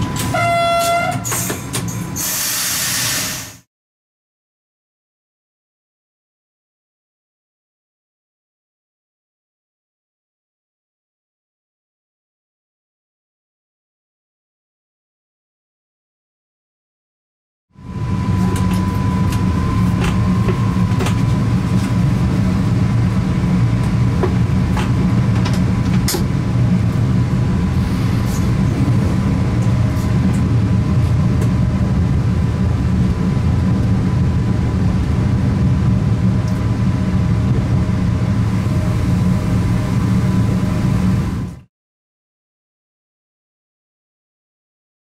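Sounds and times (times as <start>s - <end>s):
train low rumble: 0.0s - 3.7s, 17.7s - 41.7s.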